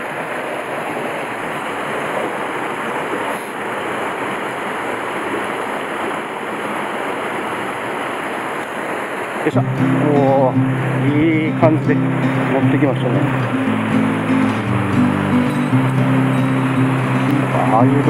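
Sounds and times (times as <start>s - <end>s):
waterfall rushing water: 0.0s - 18.0s.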